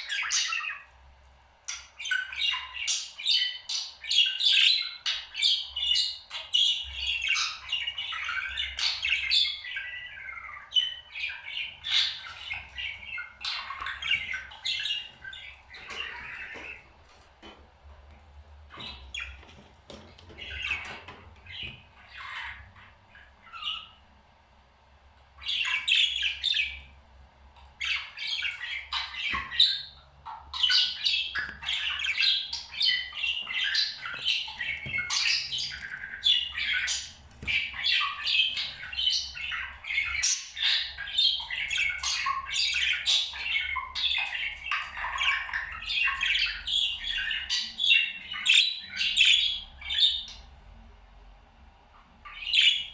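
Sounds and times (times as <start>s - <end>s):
parrot chattering and squawking: 1.7s - 16.9s.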